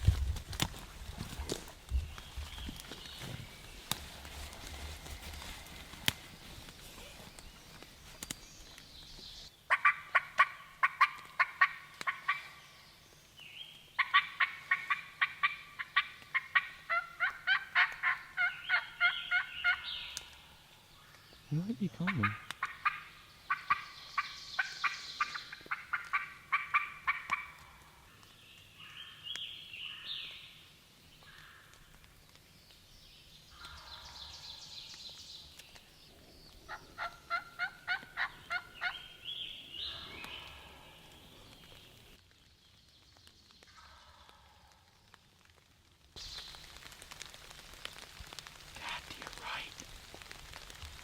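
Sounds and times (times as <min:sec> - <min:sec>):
wild turkey calling: 0:09.7 - 0:12.7, 0:14.0 - 0:28.2, 0:36.5 - 0:42.0.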